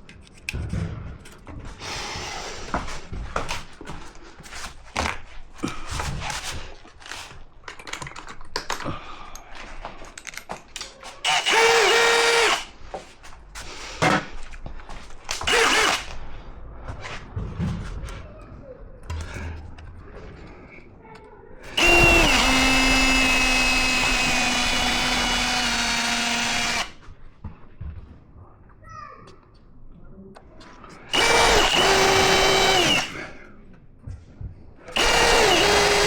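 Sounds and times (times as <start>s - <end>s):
power drill running: 1.8s - 2.8s, 11.2s - 12.8s, 15.4s - 16.2s, 21.6s - 27.0s, 31.1s - 33.3s, 34.9s - 36.0s
handling knocks and clicks: 2.8s - 11.2s.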